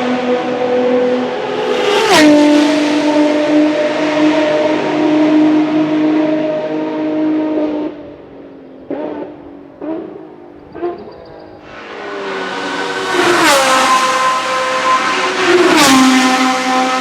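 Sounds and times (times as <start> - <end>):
race car engine passing at speed: 0.0 - 17.0.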